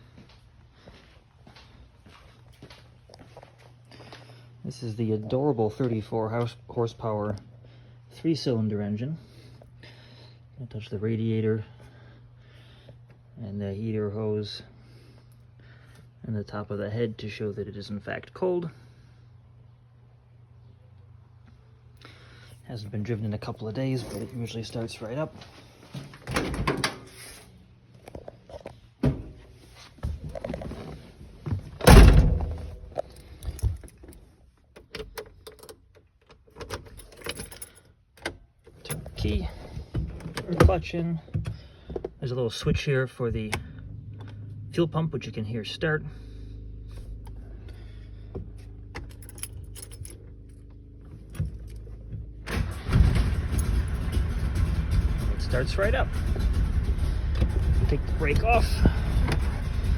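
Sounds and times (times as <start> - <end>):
two-stroke engine starting and running: 52.4 - 59.9.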